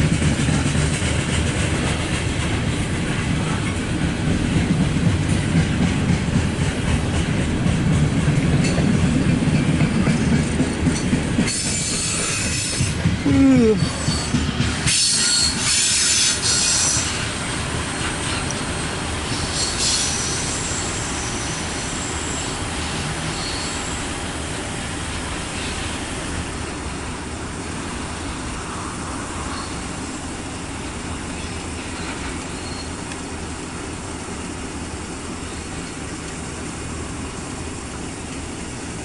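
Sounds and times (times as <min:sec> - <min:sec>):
train wheels rumbling on rails: 0:00.0 - 0:39.0
high wheel squeals: 0:11.5 - 0:13.0, 0:13.6 - 0:17.3, 0:18.1 - 0:24.2, 0:29.5 - 0:30.3, 0:31.4 - 0:33.2.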